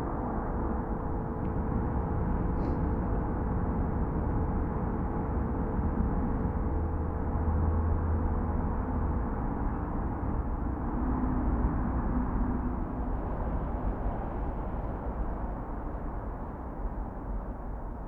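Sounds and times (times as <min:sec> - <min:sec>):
deep low hum: 0:00.0 - 0:13.2
low rumbling noise drone: 0:00.0 - 0:18.0.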